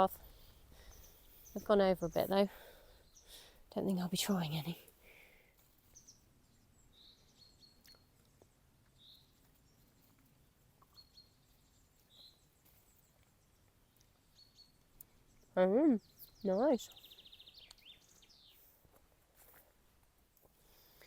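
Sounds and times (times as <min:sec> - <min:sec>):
bird chirps: 0:05.8 - 0:10.2, 0:10.8 - 0:18.7.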